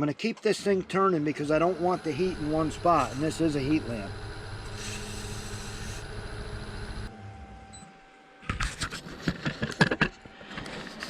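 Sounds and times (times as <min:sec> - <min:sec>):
wood lathe running: 0:01.2 - 0:07.1.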